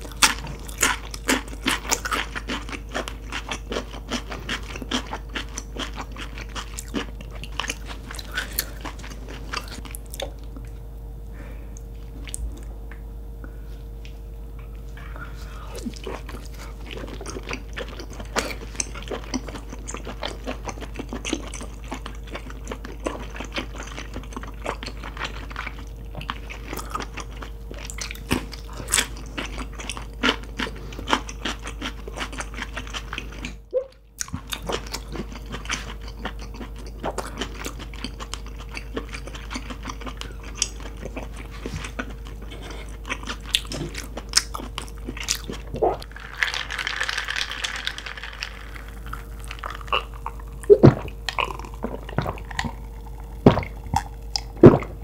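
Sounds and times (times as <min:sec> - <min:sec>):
wet chewing clicks and smacks: 0:34.2 - 0:46.1, 0:48.5 - 0:55.0.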